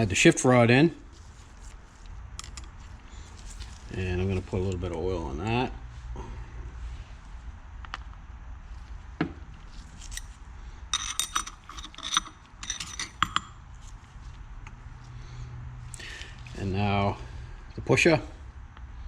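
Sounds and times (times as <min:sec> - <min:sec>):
steady low hum: 0:00.0 - 0:19.0
metal parts clinking: 0:02.4 - 0:02.8, 0:10.0 - 0:13.6.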